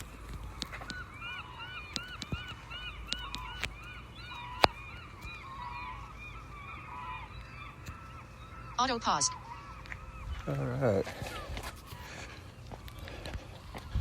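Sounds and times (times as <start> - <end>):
waterbirds honking: 0.0 - 14.0
sharp clicks: 1.9 - 5.4.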